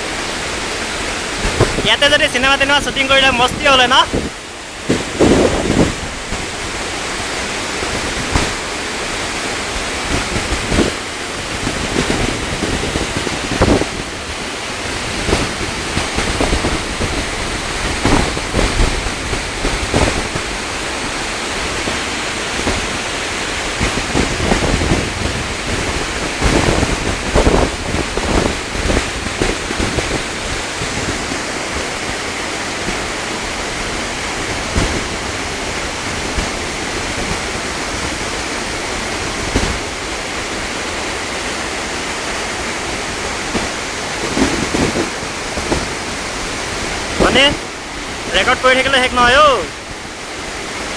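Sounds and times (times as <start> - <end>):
waterfall rushing: 0.0 - 17.9, 45.2 - 50.9
wind gusts on microphone: 0.0 - 31.8, 44.2 - 50.9.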